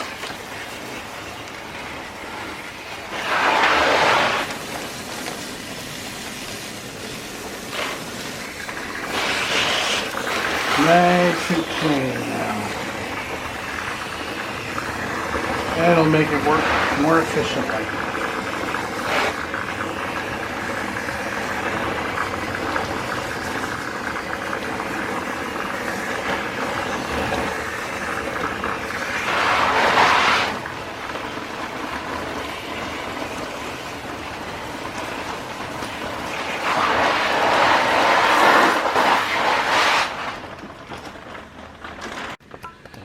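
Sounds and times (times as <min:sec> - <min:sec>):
pressure washer motor whine: 0:00.0 - 0:41.8
water spray hissing: 0:03.0 - 0:19.4, 0:28.8 - 0:30.6.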